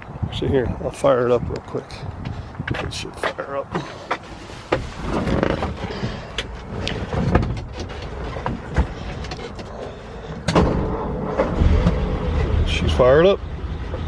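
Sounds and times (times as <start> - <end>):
engine starting and idling: 10.4 - 13.0.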